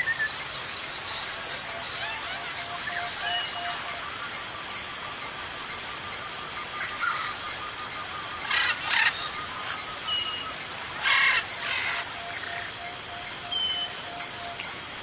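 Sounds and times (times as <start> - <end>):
parrot harsh squawks: 11.0 - 12.0.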